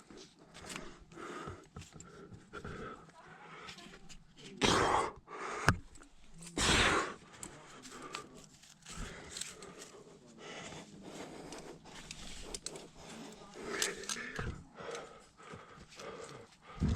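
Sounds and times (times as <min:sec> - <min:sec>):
person breathing heavily: 0:00.0 - 0:16.9
loud forceful exhale: 0:06.6 - 0:07.2
scrapes and clicks on rock: 0:07.2 - 0:16.5.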